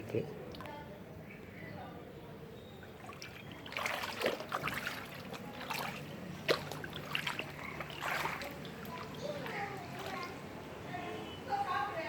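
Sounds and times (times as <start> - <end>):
floodwater splashing: 2.8 - 10.6.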